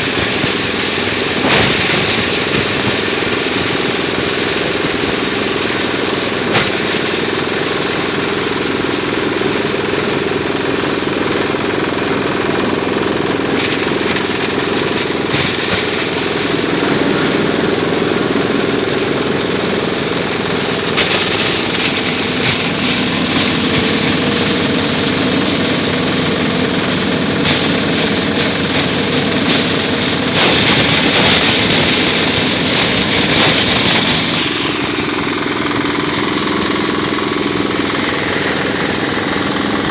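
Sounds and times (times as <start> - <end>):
chaff cutter clatter: 0.0 - 8.3
diesel engine running: 0.0 - 39.9.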